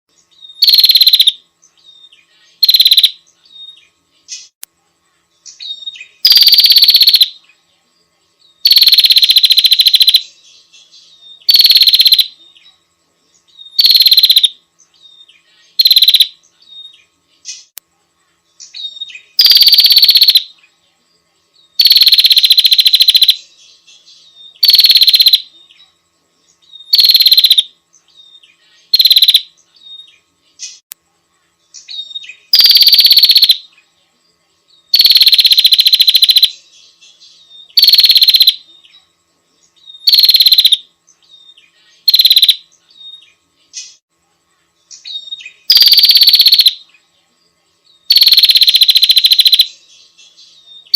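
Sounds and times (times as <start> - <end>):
bird buzzy chattering trills: 0.6 - 1.4, 2.5 - 3.2, 5.5 - 7.4, 8.6 - 10.4, 11.4 - 12.4, 13.7 - 14.5, 15.6 - 16.4, 18.6 - 20.5, 21.8 - 23.5, 24.5 - 25.5, 26.8 - 27.7, 28.8 - 29.6, 31.8 - 33.7, 34.9 - 36.6, 37.7 - 38.7, 39.9 - 40.8, 42.0 - 42.8, 45.0 - 46.8, 48.1 - 49.8.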